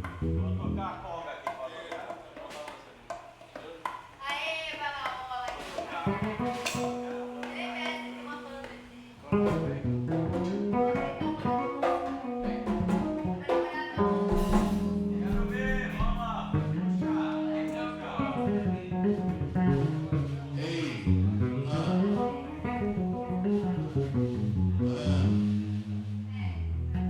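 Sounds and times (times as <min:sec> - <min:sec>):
plucked guitar: 0:00.0 - 0:02.5, 0:05.5 - 0:27.0
live band music: 0:09.3 - 0:27.0
sustained low notes: 0:14.6 - 0:27.0.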